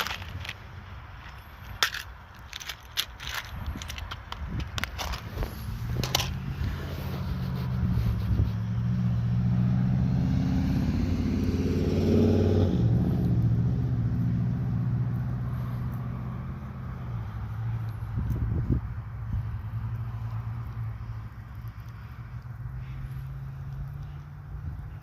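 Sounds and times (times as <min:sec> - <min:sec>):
vehicle driving past: 0:05.8 - 0:25.0.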